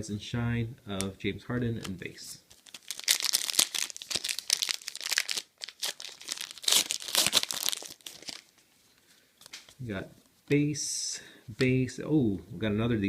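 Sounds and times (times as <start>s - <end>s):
foil wrapper tearing and crinkling: 2.5s - 8.5s.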